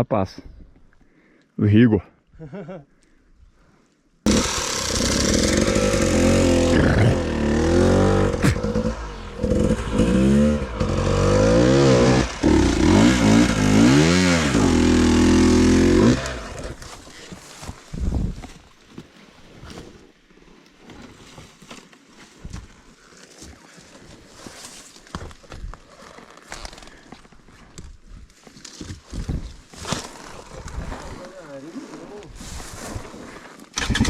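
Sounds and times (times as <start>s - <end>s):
motorcycle engine revving: 4.3s - 16.8s, 33.8s - 34.0s.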